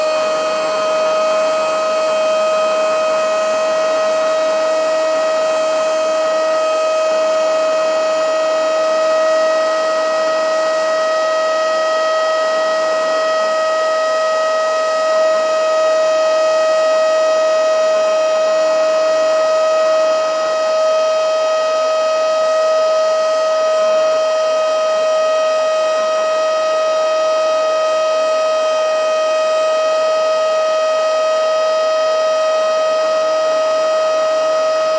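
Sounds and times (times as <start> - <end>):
mini vacuum motor whining: 0.0 - 10.8.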